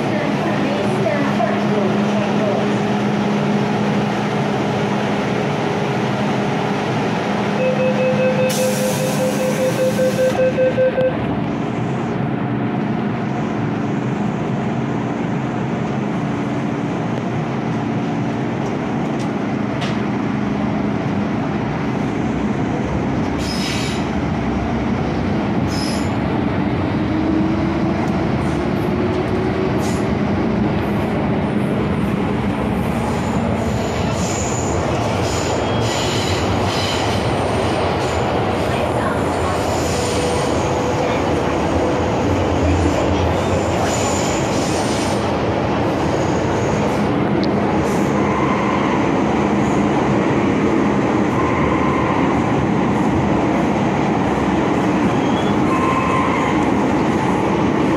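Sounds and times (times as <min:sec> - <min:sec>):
train wheel and rail noise: 0:00.0 - 0:57.9
door warning beeps: 0:07.6 - 0:11.2.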